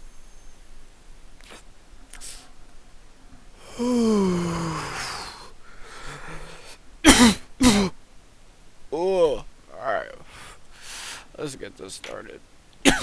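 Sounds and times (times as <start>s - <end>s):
person groaning exhale: 3.6s - 6.8s
person coughing: 7.0s - 8.0s.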